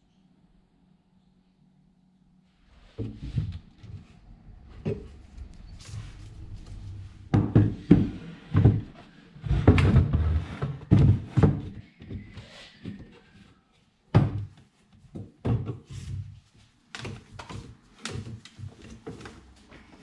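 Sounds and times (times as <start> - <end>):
wooden knocks and thuds: 7.3 - 9.0.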